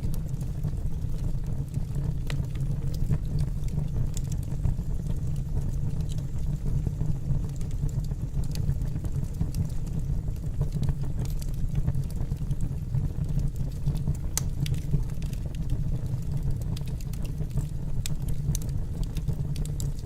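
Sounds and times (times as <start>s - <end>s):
burning wood crackling and popping: 0.0s - 20.0s
low rumble of flames: 0.0s - 20.0s.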